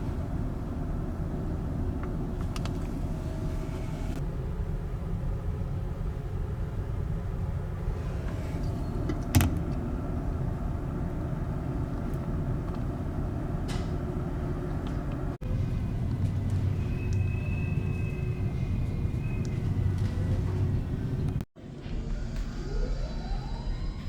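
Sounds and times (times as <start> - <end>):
ferry engine rumble: 0.0 - 24.0.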